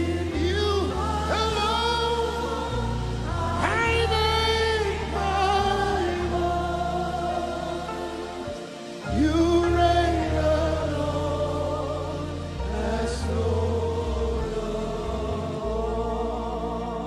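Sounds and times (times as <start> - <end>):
gospel band playing: 0.0 - 17.0
singers holding long notes: 0.0 - 17.0.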